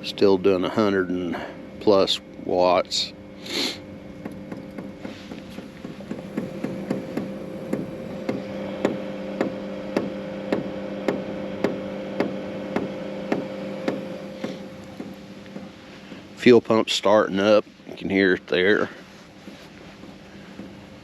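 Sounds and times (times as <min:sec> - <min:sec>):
heater fan humming: 0:00.0 - 0:21.0
fuel pump ticking: 0:05.5 - 0:16.3.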